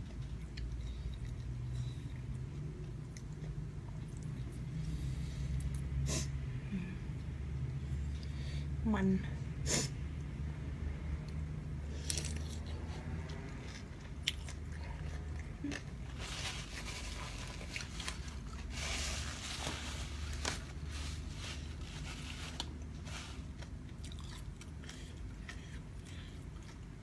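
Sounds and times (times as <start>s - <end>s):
person chewing crunchy food: 0.0s - 5.8s, 11.9s - 27.0s.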